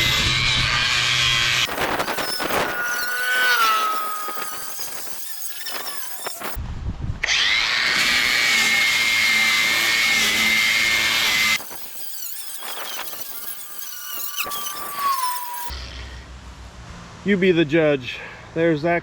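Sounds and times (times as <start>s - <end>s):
power tool motor whine: 0.0s - 6.6s, 7.2s - 15.7s.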